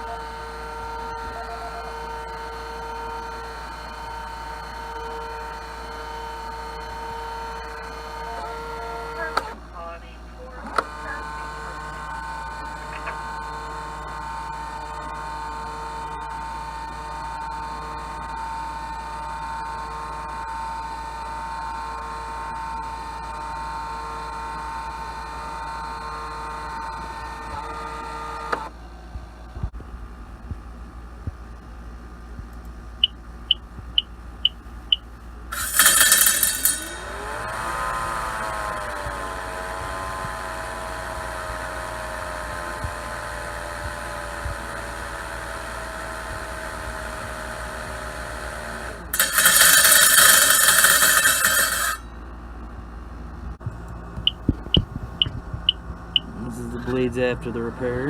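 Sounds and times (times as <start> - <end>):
mower blade motor whine: 0.0 - 29.8, 32.6 - 58.0
short electronic beeps: 33.0 - 35.1, 54.2 - 56.3.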